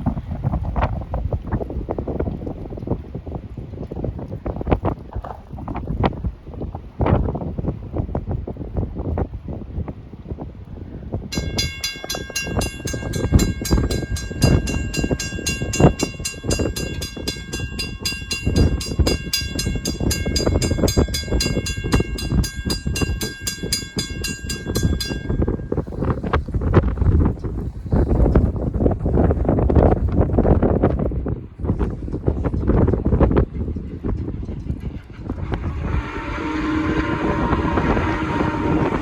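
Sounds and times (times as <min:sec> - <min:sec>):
wind on microphone: 0:00.0 - 0:39.0
crossing bell ringing: 0:11.3 - 0:26.3, 0:35.8 - 0:39.0
heavy low rumble: 0:11.7 - 0:39.0.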